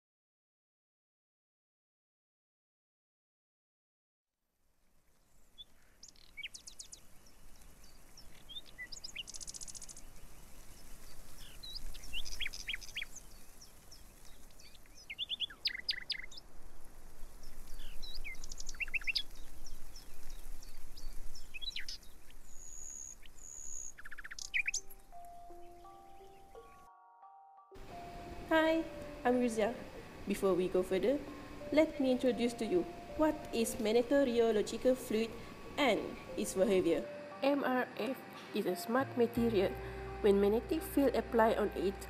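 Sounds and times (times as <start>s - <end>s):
birds chirping and trilling: 5.2s - 16.5s, 17.1s - 27.0s
faint low rumble: 39.0s - 42.0s.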